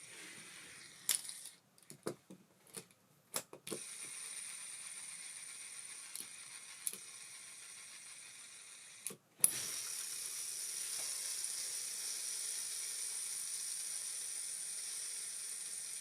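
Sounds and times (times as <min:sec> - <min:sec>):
reel spool spinning whirr: 0:03.8 - 0:16.0.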